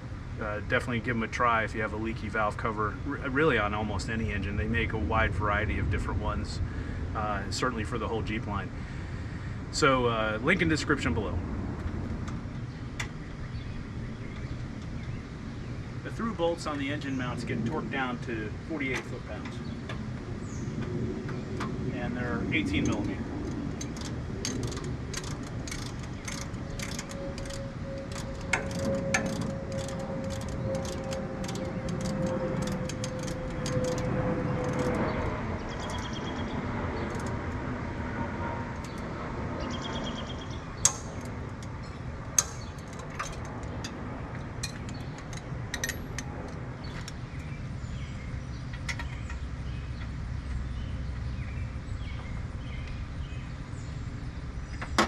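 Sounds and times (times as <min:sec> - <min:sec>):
steady low hum: 0:00.0 - 0:55.0
hand tool clicking: 0:22.8 - 0:35.1, 0:40.8 - 0:41.7, 0:42.4 - 0:44.0, 0:44.6 - 0:46.3
sharp metal knocks: 0:40.8 - 0:47.2.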